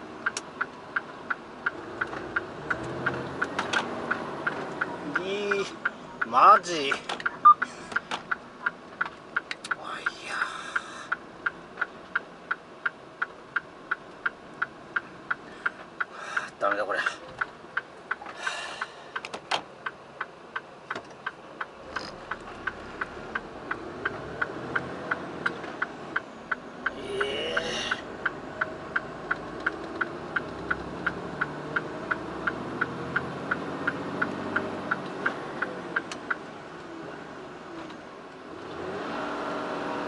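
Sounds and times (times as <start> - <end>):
diesel truck engine: 0.0 - 40.0
turn signal relay ticking: 0.1 - 38.5.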